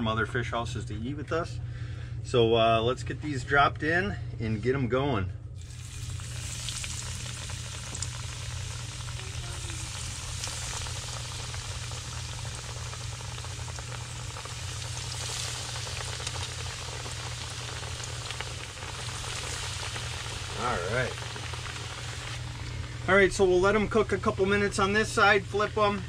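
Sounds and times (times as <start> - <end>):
low hum: 5.2 - 26.0
fish deep-frying in hot oil: 5.6 - 26.0.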